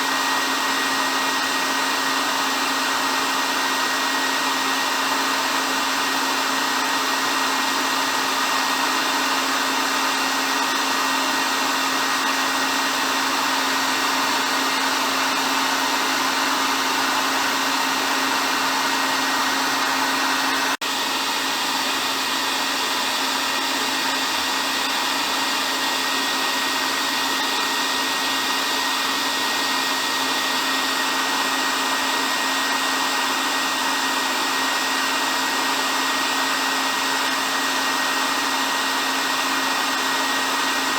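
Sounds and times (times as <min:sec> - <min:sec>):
hair dryer blowing: 0:00.0 - 0:40.9.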